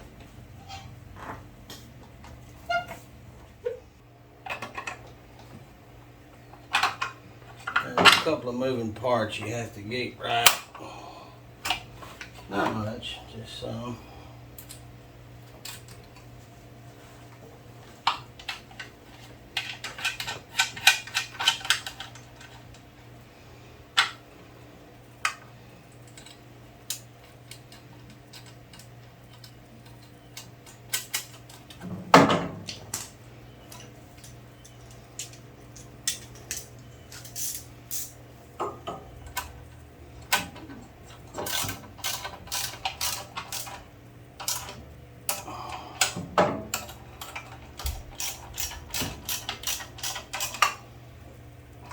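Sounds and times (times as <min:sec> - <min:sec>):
steady low hum: 0:00.0 - 0:51.9
metal parts clinking: 0:33.7 - 0:38.2, 0:41.2 - 0:43.8, 0:46.7 - 0:50.8.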